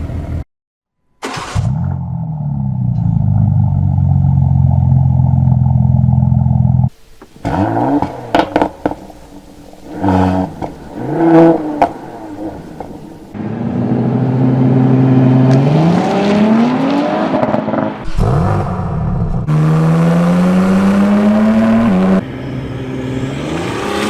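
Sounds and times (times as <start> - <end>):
car engine idling: 0.0 - 0.4.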